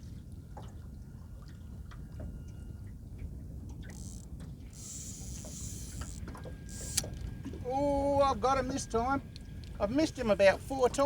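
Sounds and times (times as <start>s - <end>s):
water lapping and dripping: 0.0s - 11.0s.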